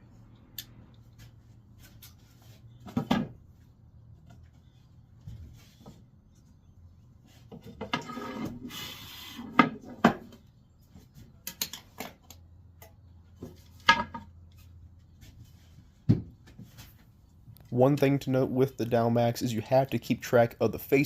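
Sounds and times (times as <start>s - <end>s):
wood knocking and clattering: 2.8s - 3.4s, 7.5s - 8.4s, 13.4s - 14.3s, 16.0s - 16.8s
wood scraping on workbench: 7.4s - 10.2s.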